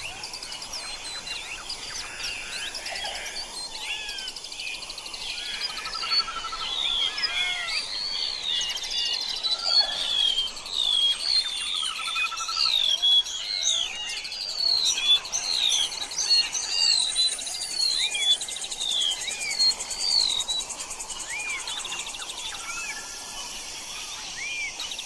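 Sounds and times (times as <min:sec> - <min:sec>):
birds chirping and whistling: 0:00.0 - 0:25.0
high insect trill: 0:00.0 - 0:25.0.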